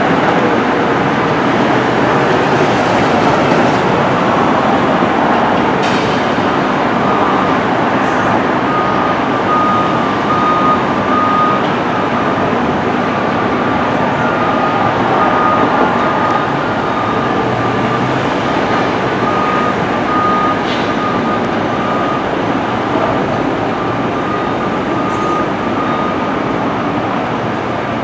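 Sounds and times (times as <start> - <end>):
loud vehicle rumble: 0.0 - 28.0
backup alarm beeping: 8.6 - 13.5, 14.2 - 26.6.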